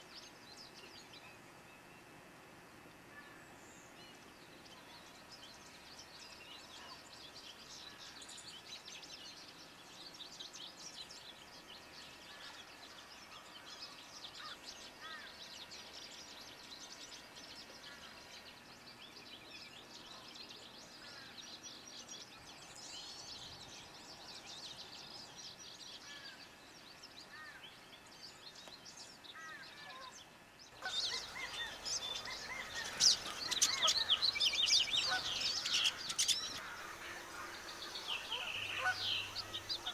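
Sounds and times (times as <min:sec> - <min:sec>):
wild birds chirping: 0:30.8 - 0:39.9.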